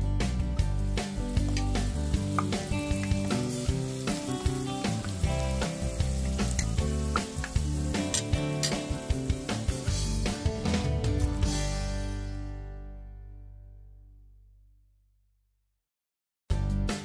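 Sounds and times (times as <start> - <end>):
background music with beat: 0.0 - 12.5
potatoes sizzling in oil: 0.6 - 10.4.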